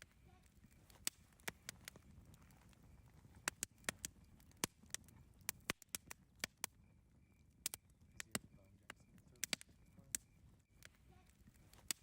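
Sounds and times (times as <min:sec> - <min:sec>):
campfire crackling and popping: 0:00.0 - 0:12.0
low rumble of burning: 0:00.0 - 0:12.0.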